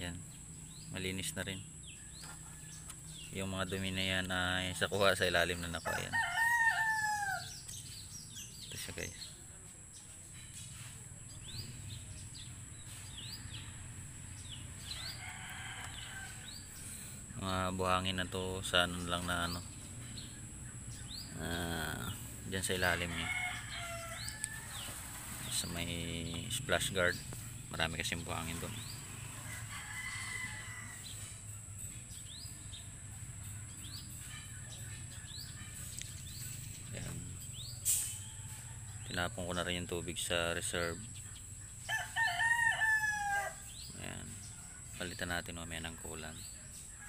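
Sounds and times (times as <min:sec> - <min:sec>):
small bird chirping: 0:07.0 - 0:23.2, 0:30.9 - 0:39.7.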